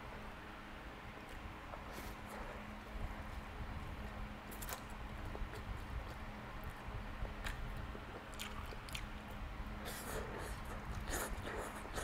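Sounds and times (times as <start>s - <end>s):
faint steady hum: 0.0s - 12.0s
person chewing noodles: 4.6s - 9.2s, 9.8s - 12.0s.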